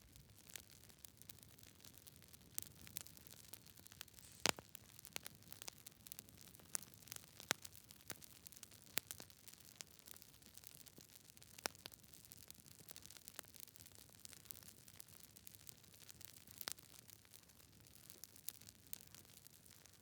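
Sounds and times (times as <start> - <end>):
campfire wood crackling: 0.0 - 20.0
faint fire hiss: 2.7 - 5.5.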